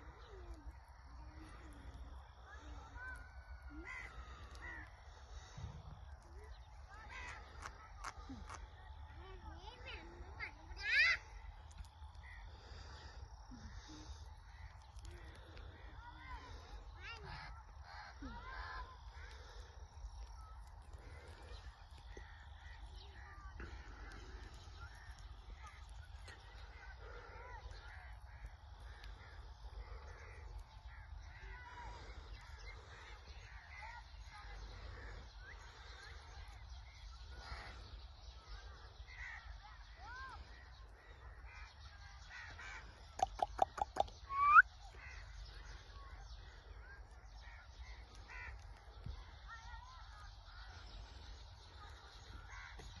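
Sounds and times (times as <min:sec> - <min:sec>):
parrot chirping calls: 0:43.2 - 0:44.6.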